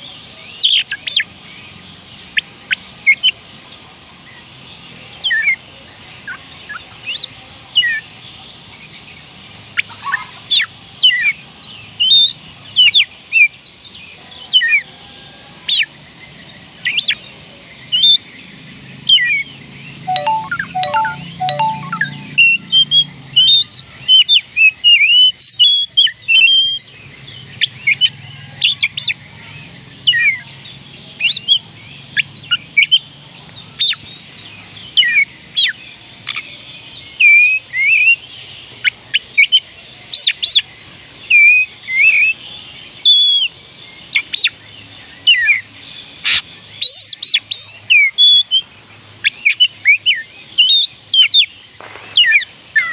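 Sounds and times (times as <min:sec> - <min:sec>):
bird singing whistled notes: 0:20.1 - 0:23.7, 0:45.3 - 0:48.6.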